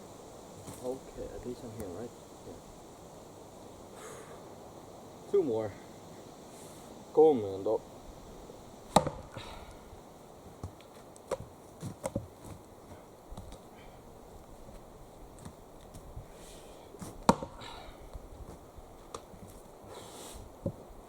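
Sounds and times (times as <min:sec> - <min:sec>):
axe striking a log: 0:08.9 - 0:09.3, 0:17.3 - 0:17.6.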